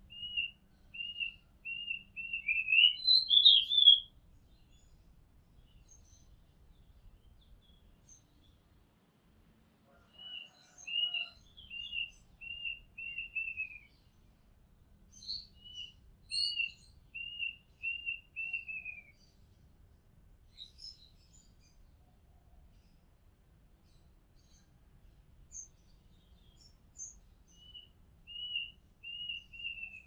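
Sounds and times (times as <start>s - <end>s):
faint bird chirps: 0.0s - 5.0s, 15.1s - 19.5s, 25.5s - 30.0s
bird whistling song: 0.1s - 4.1s, 10.3s - 13.9s, 15.1s - 19.2s, 26.6s - 30.0s.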